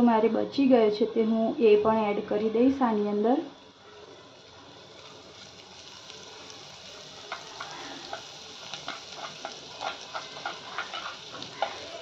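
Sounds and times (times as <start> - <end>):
spices sizzling in hot oil: 0.0 - 12.0
oil crackling: 4.1 - 12.0
wooden spoon stirring and tapping: 7.2 - 12.0.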